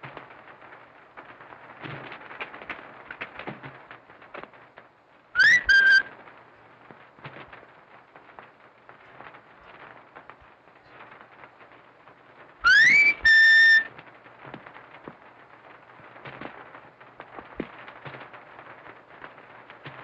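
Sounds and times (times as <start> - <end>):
film soundtrack hiss and crackle: 0.0 - 20.0
loud whistle: 5.4 - 6.1, 12.6 - 13.9.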